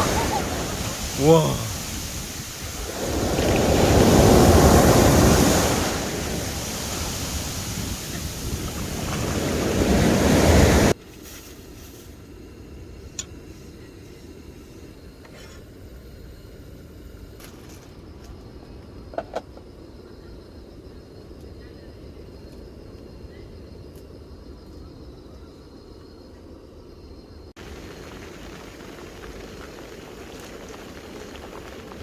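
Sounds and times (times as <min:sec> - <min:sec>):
sea waves breaking: 0:00.0 - 0:11.0
wind buffeting microphone: 0:00.0 - 0:11.0.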